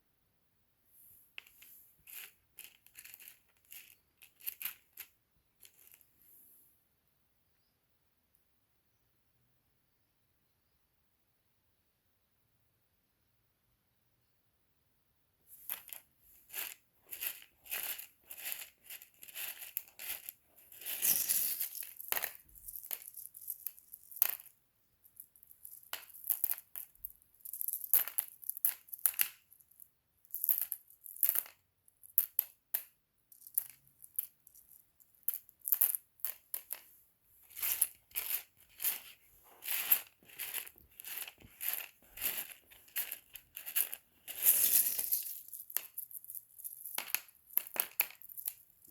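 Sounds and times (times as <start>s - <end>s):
stone chips clinking: 1.4s - 6.0s, 15.7s - 24.5s, 37.5s - 48.9s.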